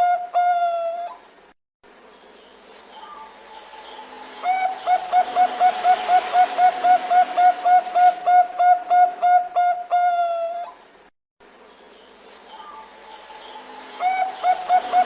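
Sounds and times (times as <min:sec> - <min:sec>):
dove cooing: 0:00.0 - 0:01.2, 0:04.4 - 0:10.8, 0:14.0 - 0:15.0
faint steady hiss: 0:00.0 - 0:15.0.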